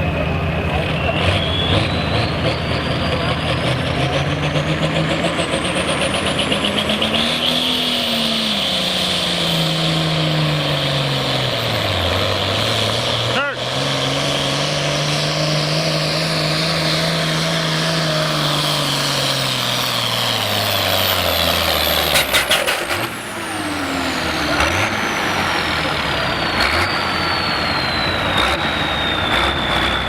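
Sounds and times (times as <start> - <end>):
tractor engine running hard: 0.0 - 30.0
high whistle sliding down: 0.9 - 3.4, 25.0 - 30.0.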